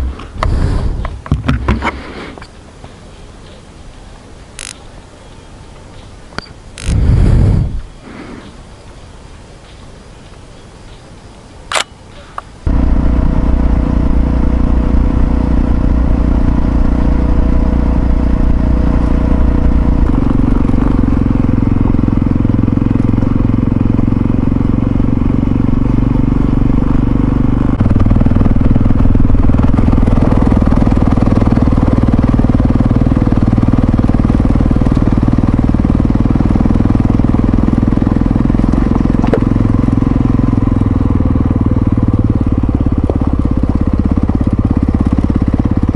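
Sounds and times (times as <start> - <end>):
motorcycle engine running: 0.0 - 1.7, 12.7 - 45.9
sharp click: 4.6 - 4.8, 6.4 - 7.1, 11.7 - 12.5.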